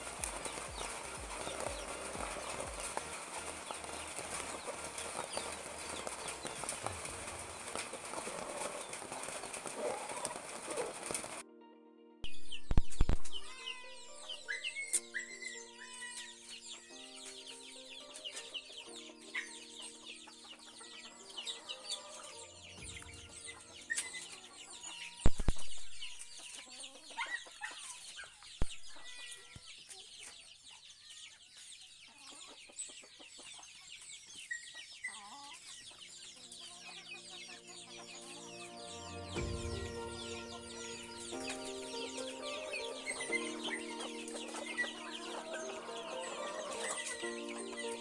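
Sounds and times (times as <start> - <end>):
chickens clucking: 0.0 - 11.4, 12.8 - 48.0
high chirps: 37.2 - 48.0.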